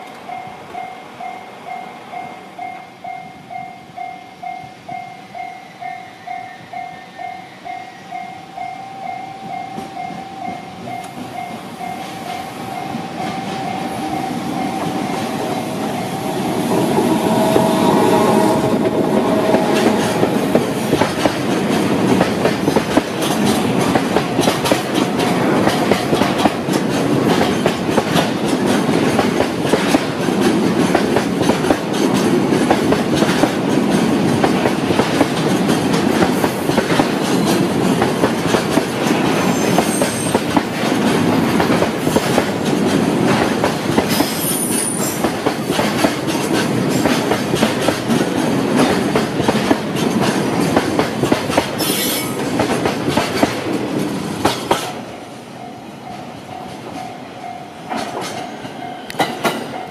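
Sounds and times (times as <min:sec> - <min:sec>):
train wheels clicking over rail joints: 0:09.3 - 0:55.4, 0:56.0 - 0:59.9
high wheel squeals: 0:11.9 - 0:21.0, 0:44.1 - 0:45.3.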